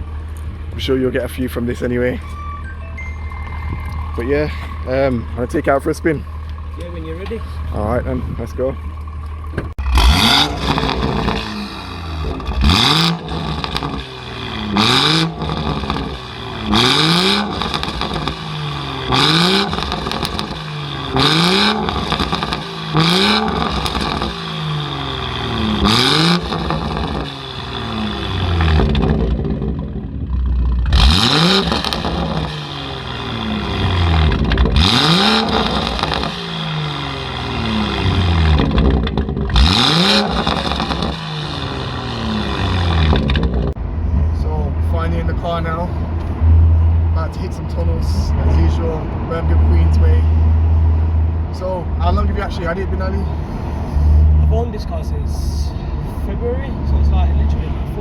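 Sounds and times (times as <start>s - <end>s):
harsh exhaust rasp: 3.7s - 43.8s, 52.1s - 54.7s
car engine revving hard: 9.8s - 30.0s, 30.6s - 43.8s.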